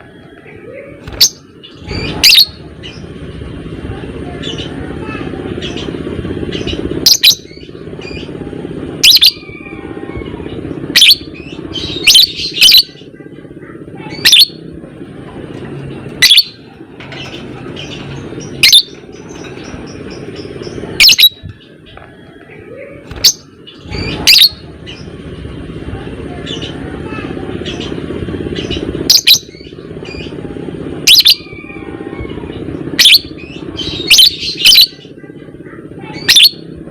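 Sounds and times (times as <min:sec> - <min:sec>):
low background rumble: 0:00.0 - 0:36.9
lovebird shrill chirps: 0:16.2 - 0:16.5, 0:18.6 - 0:18.9, 0:23.2 - 0:24.6.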